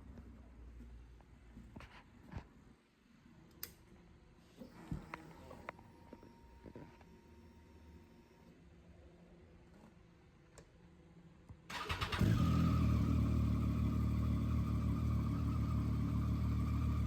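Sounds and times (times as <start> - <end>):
motorcycle engine starting: 11.7 - 17.0.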